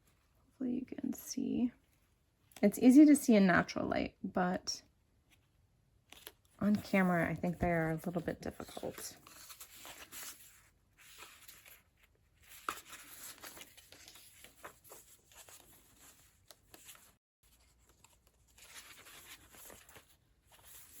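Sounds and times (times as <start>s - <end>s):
paper pages rustling: 6.1s - 21.0s.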